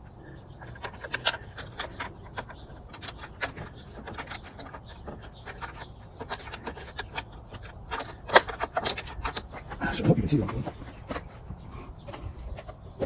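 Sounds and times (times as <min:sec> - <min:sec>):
wrench metallic clicks: 0:00.6 - 0:09.6.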